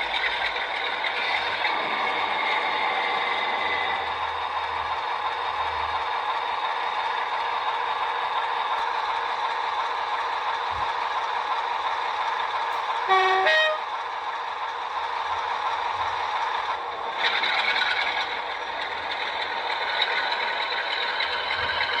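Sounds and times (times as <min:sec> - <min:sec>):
model diesel engine sound: 0:00.0 - 0:22.0
two-tone horn blast: 0:13.1 - 0:13.8.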